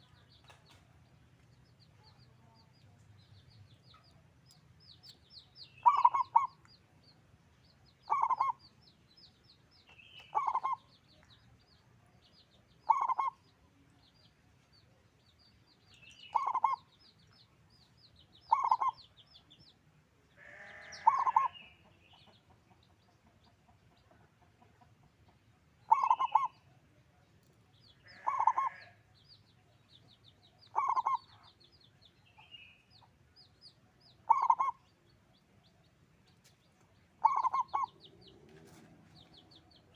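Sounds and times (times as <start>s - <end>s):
faint high-pitched chirping: 0.0s - 19.8s, 25.8s - 39.9s
dove cooing: 5.8s - 6.6s, 8.1s - 8.6s, 10.3s - 10.8s, 12.9s - 13.4s, 16.3s - 16.8s, 18.5s - 19.0s, 20.8s - 21.6s, 25.9s - 26.6s, 28.2s - 28.8s, 30.7s - 31.3s, 34.3s - 34.8s, 37.2s - 39.2s.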